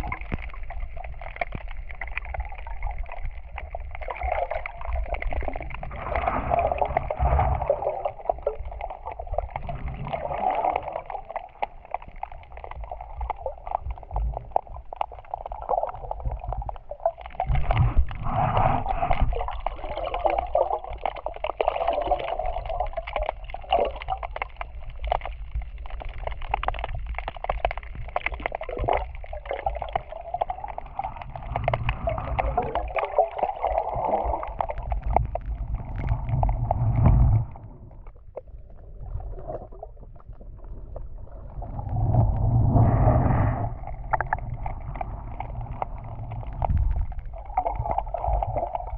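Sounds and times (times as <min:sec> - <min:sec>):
small crackling clicks: 0:00.0 - 0:05.9, 0:10.6 - 0:18.2, 0:22.9 - 0:33.0, 0:34.3 - 0:38.5, 0:43.9 - 0:48.9
muffled underwater water sloshing: 0:00.0 - 0:48.9.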